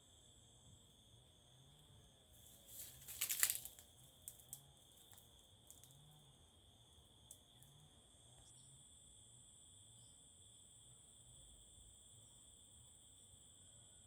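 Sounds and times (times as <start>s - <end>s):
crickets trilling: 0.0s - 14.0s
loud crackling rustle: 2.5s - 5.2s.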